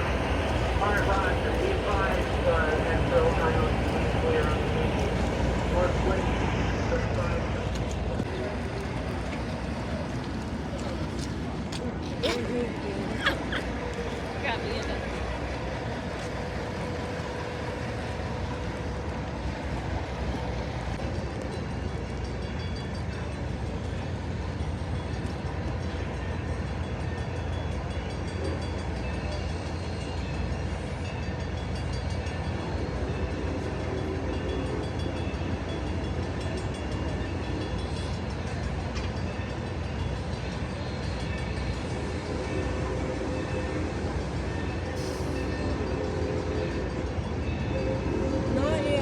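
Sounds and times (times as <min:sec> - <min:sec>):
train rumbling on rails: 0:00.0 - 0:49.0.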